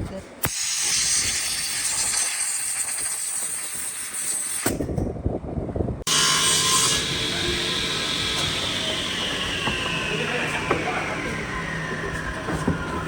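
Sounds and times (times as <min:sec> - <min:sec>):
woodworking power tools running: 0:06.1 - 0:13.0.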